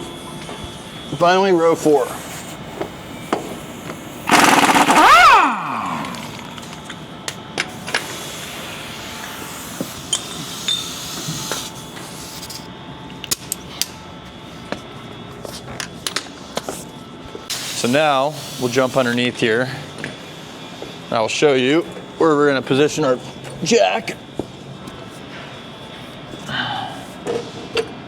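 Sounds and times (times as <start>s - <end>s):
power tool running: 1.3s - 7.0s.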